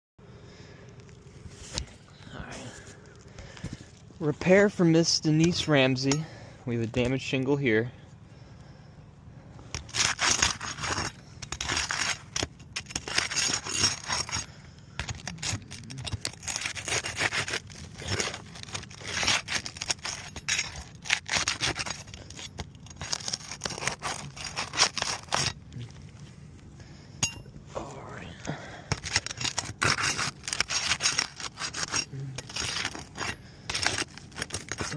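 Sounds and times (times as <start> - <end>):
roof shingles being scraped: 9.7 - 25.6, 29.0 - 34.9.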